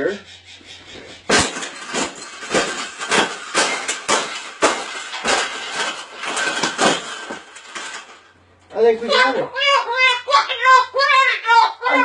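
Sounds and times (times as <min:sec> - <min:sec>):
wire cage clanking and rattling: 0:01.2 - 0:09.4.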